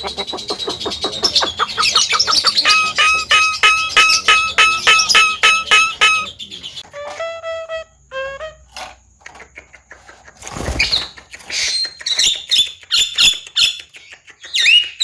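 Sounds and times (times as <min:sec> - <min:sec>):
bird calling: 0:00.0 - 0:06.9.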